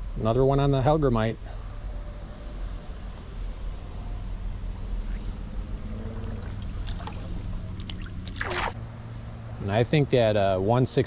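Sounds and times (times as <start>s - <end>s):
high insect trill: 0.0s - 11.0s
low rumble: 1.4s - 9.0s.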